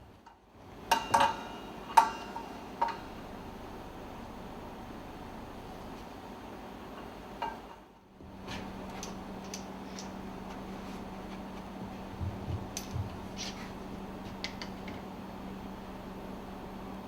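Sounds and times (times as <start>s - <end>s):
steady low hum: 0.0s - 17.0s
dull knocks: 12.2s - 13.2s.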